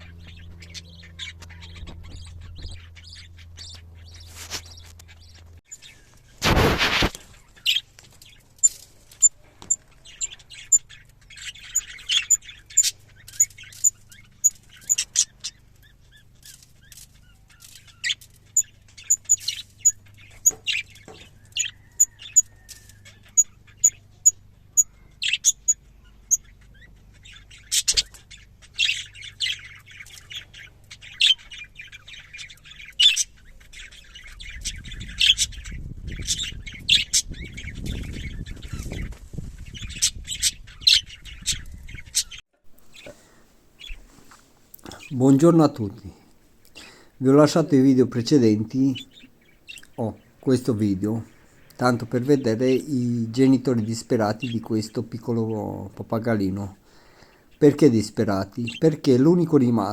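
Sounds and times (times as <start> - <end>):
budgerigars chirping: 0.0 - 44.1, 44.8 - 59.9
loud rustle: 6.1 - 9.2.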